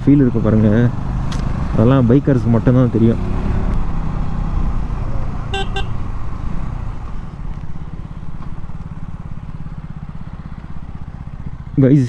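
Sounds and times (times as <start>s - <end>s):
motorcycle engine cruising: 0.0s - 12.0s
short horn-like beeps: 5.5s - 6.0s.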